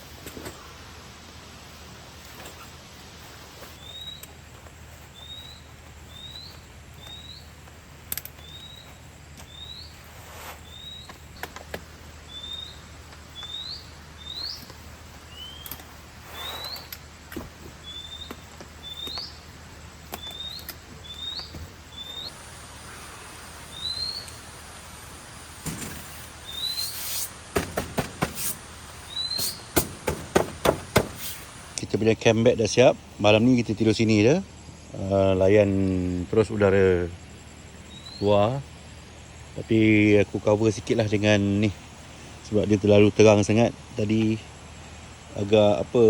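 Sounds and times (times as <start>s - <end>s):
knocks and rustles: 15.6s - 19.3s, 20.1s - 22.2s, 25.6s - 28.7s, 29.3s - 31.6s
small animal chirping: 29.0s - 29.8s.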